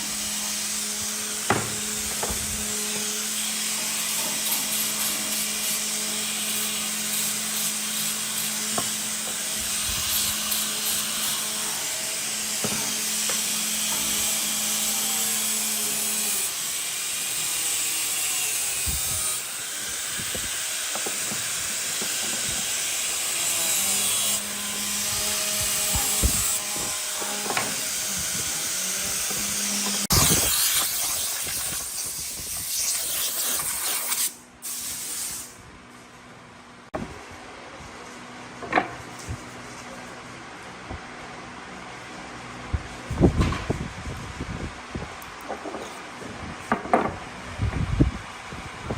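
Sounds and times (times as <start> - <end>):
power tool cutting wood: 0.0 - 34.4.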